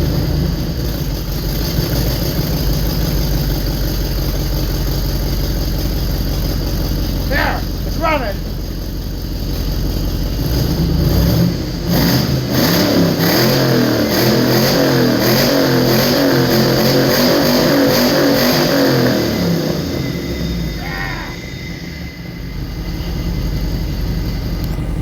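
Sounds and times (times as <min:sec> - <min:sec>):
car engine revving: 0:05.7 - 0:25.0.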